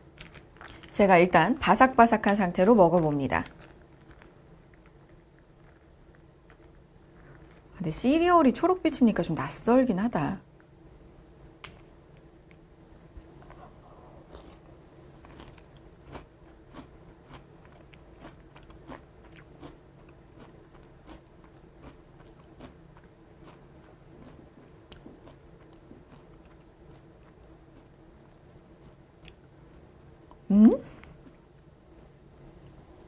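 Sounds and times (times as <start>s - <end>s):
person chewing crunchy cereal: 0.0s - 1.0s, 3.0s - 7.8s, 13.4s - 30.4s.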